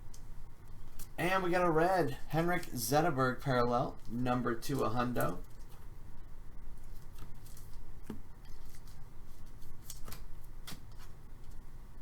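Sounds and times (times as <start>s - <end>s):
faint low hum: 0.0s - 12.0s
trading cards being flipped: 6.9s - 11.6s.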